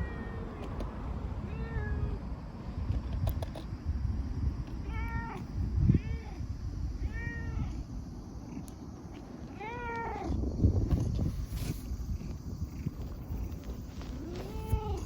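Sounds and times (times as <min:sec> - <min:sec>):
cat meowing: 0:01.5 - 0:02.2, 0:04.8 - 0:06.4, 0:07.0 - 0:07.8, 0:09.5 - 0:10.4, 0:14.2 - 0:15.0.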